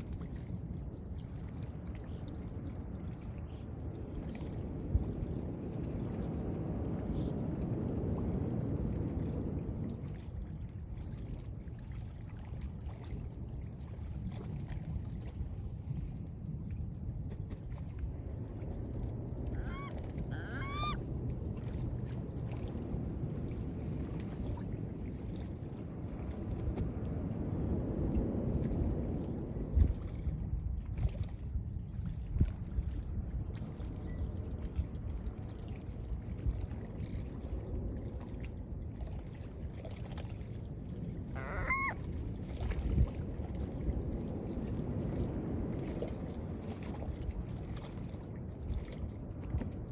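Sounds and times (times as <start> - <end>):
wind: 0.0 - 49.9
gull call: 19.5 - 21.0, 41.3 - 42.0
seagulls crying: 19.5 - 21.0, 41.3 - 42.0.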